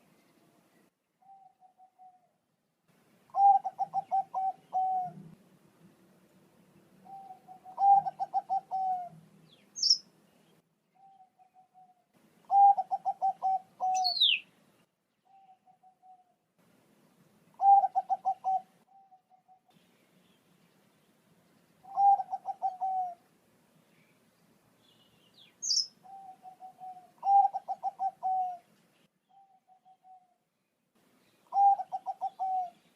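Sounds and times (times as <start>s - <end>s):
dove cooing: 1.2s - 2.4s, 3.3s - 5.4s, 7.0s - 9.2s, 11.0s - 14.4s, 15.3s - 16.4s, 17.6s - 19.7s, 21.8s - 23.2s, 25.6s - 28.7s, 29.3s - 30.4s, 31.5s - 32.9s.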